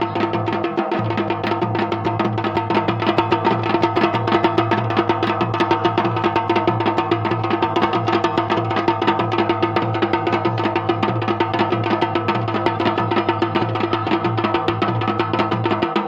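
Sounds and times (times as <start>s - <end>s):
drums playing fast rhythm: 0.0s - 16.0s.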